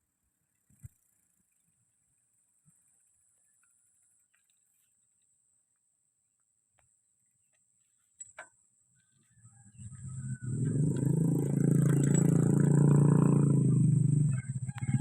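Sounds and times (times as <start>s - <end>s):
motor vehicle engine running: 9.5s - 15.0s.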